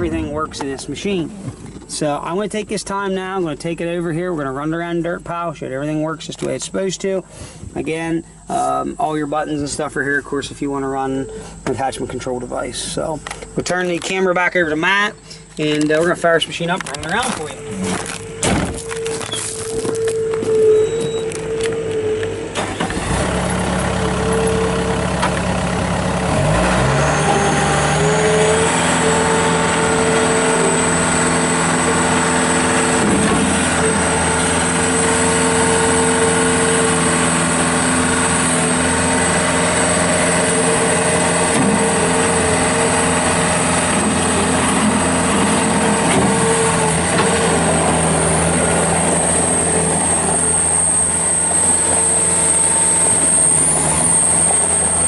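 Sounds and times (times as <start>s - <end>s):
steady high whine: 0.0s - 23.0s
diesel engine running: 0.0s - 55.0s.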